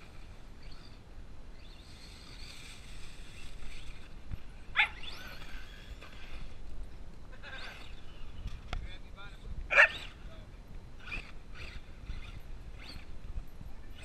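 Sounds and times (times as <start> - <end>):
dog yipping: 4.8 - 5.2, 9.7 - 10.1.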